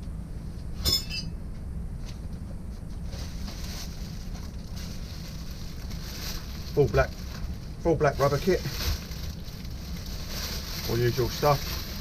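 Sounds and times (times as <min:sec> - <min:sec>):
low background rumble: 0:00.0 - 0:12.0
metallic clink: 0:00.8 - 0:01.4
packaging rustling: 0:03.2 - 0:12.0.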